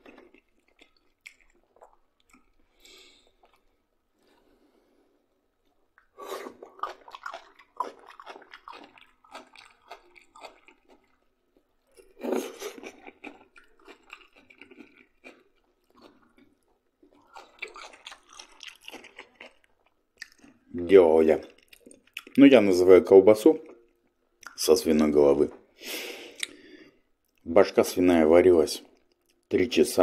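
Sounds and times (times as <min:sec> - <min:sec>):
person chewing food: 0:00.0 - 0:20.7, 0:21.4 - 0:22.4, 0:26.2 - 0:27.4.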